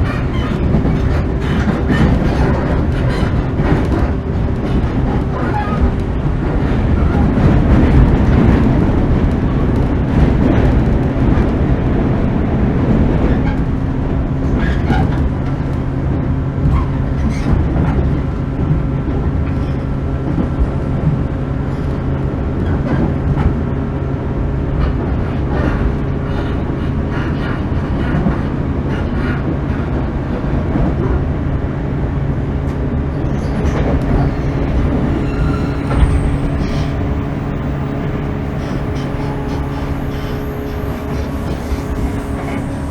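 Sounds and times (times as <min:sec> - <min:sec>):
train running gear rumble and hum: 0:00.0 - 0:42.9.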